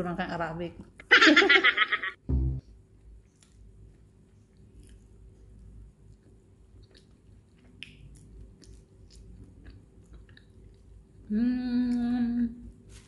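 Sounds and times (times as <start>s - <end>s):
wet chewing and lip smacks: 3.2s - 11.1s
person humming mmm: 11.3s - 12.7s.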